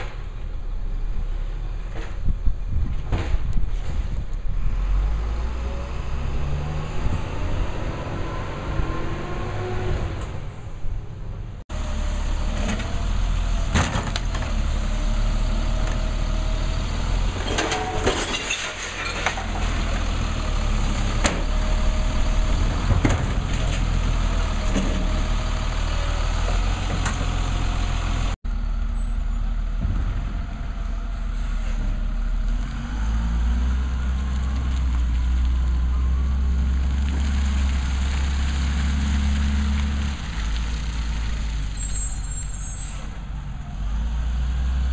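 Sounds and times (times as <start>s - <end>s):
garbage truck engine droning: 4.6s - 44.9s
sharp metal clanks and knocks: 17.4s - 19.8s.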